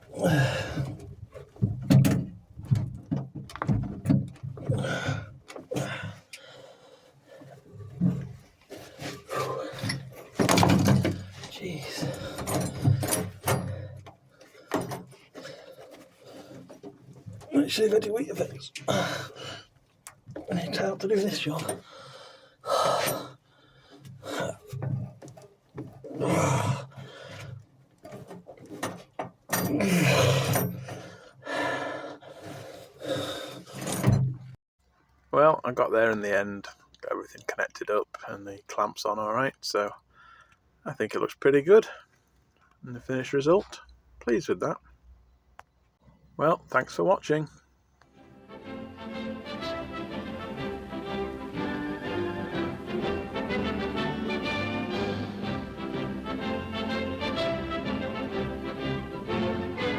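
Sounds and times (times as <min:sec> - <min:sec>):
person grunting with effort: 0:00.0 - 0:00.9, 0:04.7 - 0:06.2, 0:18.9 - 0:19.6, 0:24.2 - 0:24.8, 0:26.1 - 0:27.2, 0:29.7 - 0:30.6
knocks and scraping on exhaust hose: 0:00.0 - 0:06.4, 0:07.3 - 0:18.8, 0:23.0 - 0:31.2.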